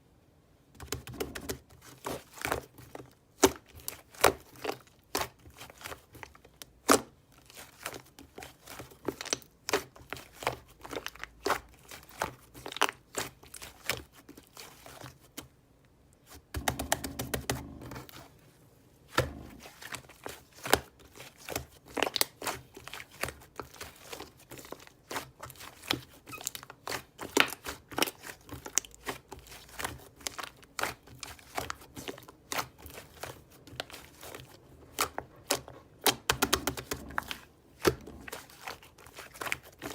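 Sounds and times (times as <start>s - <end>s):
slime squishing rustle: 0.9s - 39.9s.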